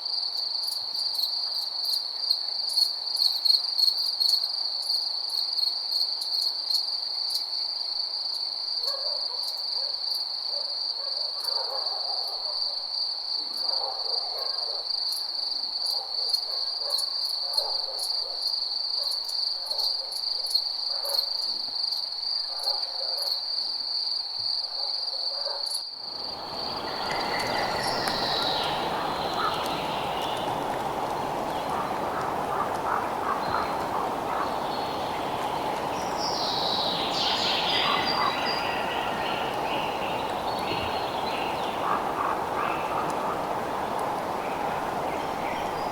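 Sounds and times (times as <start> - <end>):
crickets chirping: 0.0 - 45.9
faint lower calls: 26.2 - 45.9
bird calls: 26.4 - 45.9.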